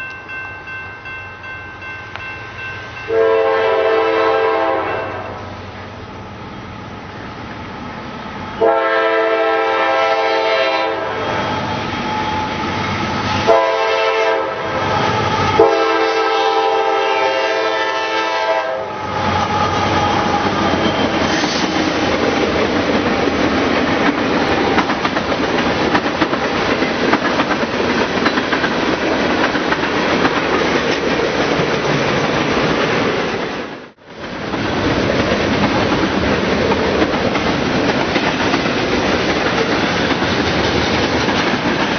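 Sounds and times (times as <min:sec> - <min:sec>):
train passing with rumble: 0:00.0 - 0:41.9
locomotive horn blasts: 0:03.1 - 0:05.5, 0:08.6 - 0:11.5, 0:13.4 - 0:14.8, 0:15.6 - 0:19.0
wheels clacking over rail joints: 0:19.2 - 0:33.6, 0:34.2 - 0:41.9.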